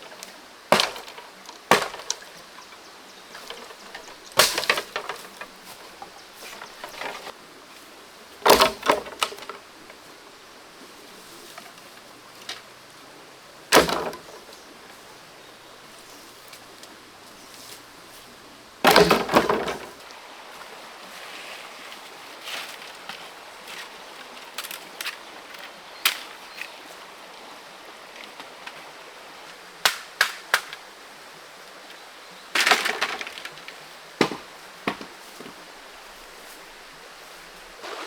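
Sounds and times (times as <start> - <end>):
faint steady background noise: 0.0 - 38.0
sharp knocking or clattering: 0.7 - 2.4, 3.3 - 7.3, 18.8 - 20.0.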